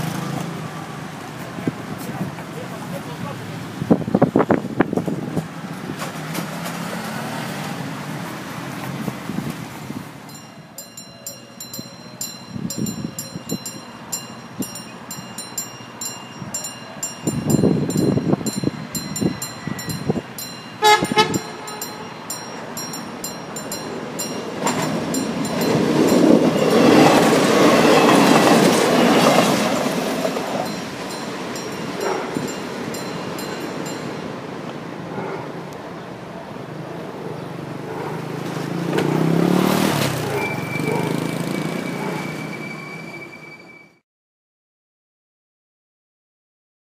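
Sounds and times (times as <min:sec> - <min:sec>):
train engine and wheels passing: 0:00.0 - 0:44.0
train horn blast: 0:20.8 - 0:22.2.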